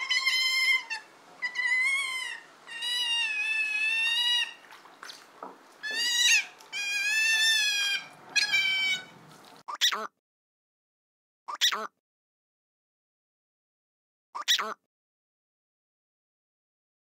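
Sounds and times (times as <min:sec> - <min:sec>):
otters squealing: 0:00.0 - 0:10.0.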